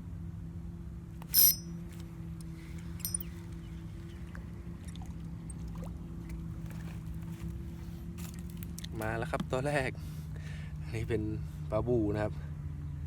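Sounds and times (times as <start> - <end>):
steady low hum: 0.8 - 5.6
small metal bell chiming: 1.3 - 1.7, 3.0 - 3.3.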